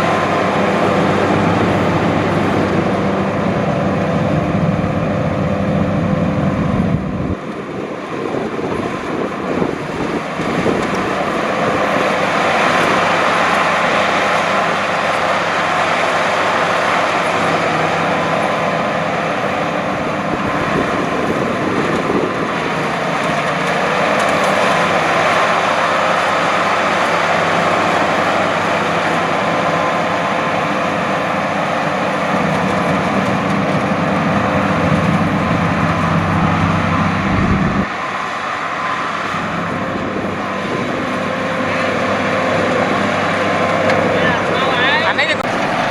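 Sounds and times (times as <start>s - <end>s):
combine harvester running: 0.0s - 45.9s.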